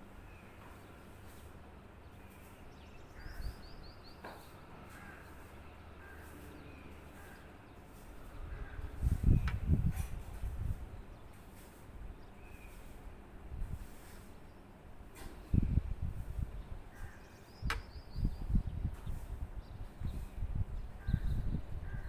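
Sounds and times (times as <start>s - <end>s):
birds calling: 0.2s - 9.8s, 16.7s - 19.2s.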